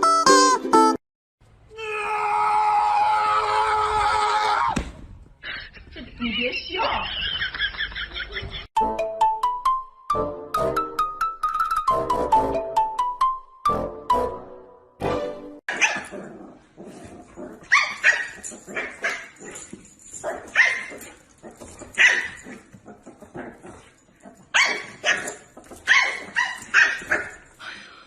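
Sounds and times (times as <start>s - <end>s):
dog barking: 15.7s - 16.2s, 17.7s - 19.6s, 20.2s - 23.0s, 23.8s - 27.5s.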